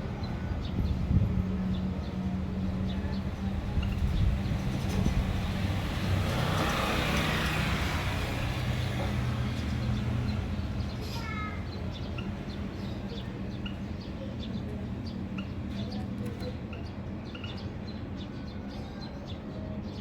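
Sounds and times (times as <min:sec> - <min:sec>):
road vehicle passing: 0:01.9 - 0:13.7.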